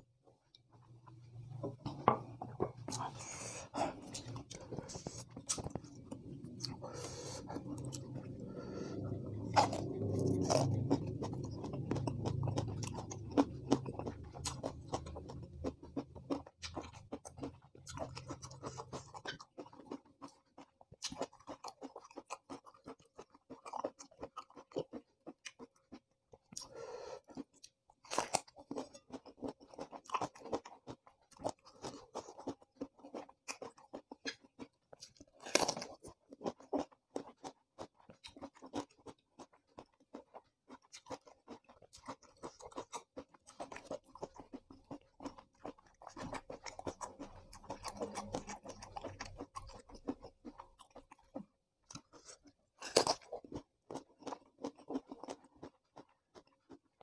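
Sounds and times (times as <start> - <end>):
low hum: 0.9 - 16.4
wet crunchy chewing: 2.7 - 57.0.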